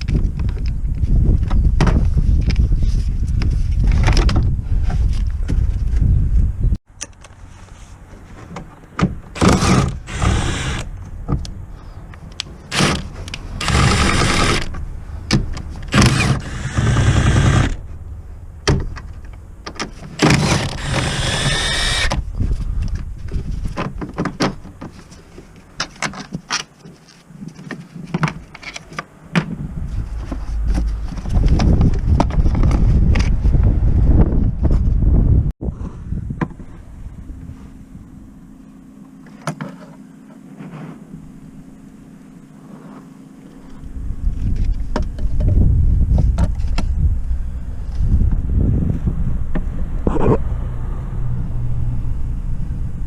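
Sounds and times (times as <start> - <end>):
power tool running: 9.4 - 10.9, 13.6 - 14.7, 15.9 - 17.8, 20.2 - 22.1.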